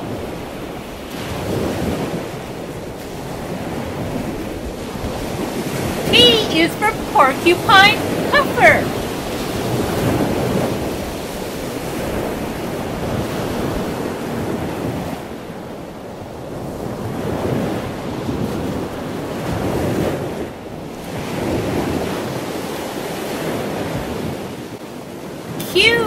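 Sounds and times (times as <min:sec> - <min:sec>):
ocean waves rushing: 0:03.1 - 0:14.2.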